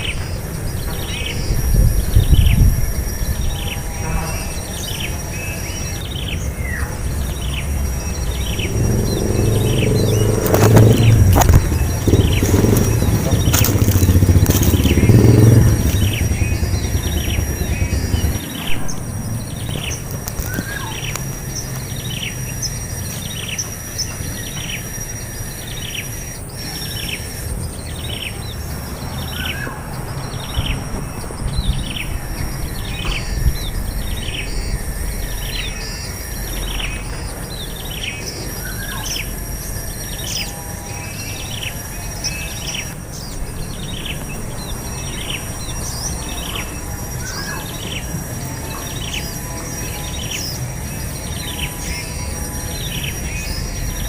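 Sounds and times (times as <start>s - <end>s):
steady high-pitched whine: 0.0s - 54.0s.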